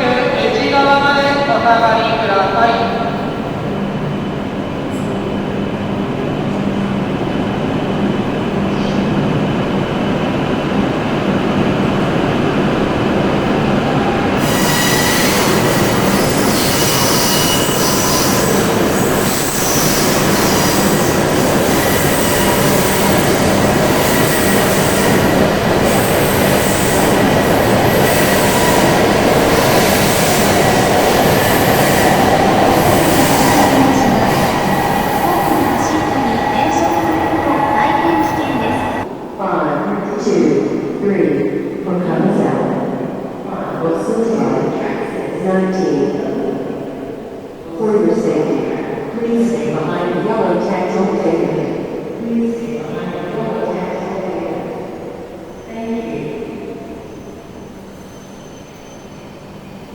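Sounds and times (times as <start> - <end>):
train rumble and rush: 0.0 - 41.9.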